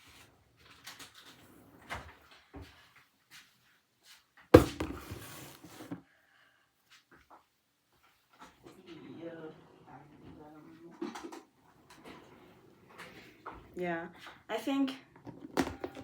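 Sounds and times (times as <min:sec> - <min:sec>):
containers knocking and clattering: 0:04.6 - 0:06.0, 0:15.3 - 0:16.0.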